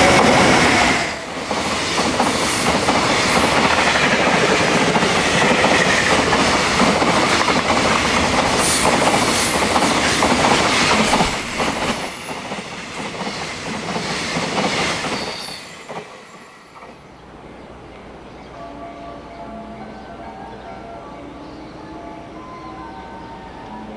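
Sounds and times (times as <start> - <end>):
train wheels clacking over rails: 0.0 - 17.5
freight train passing: 0.0 - 20.0.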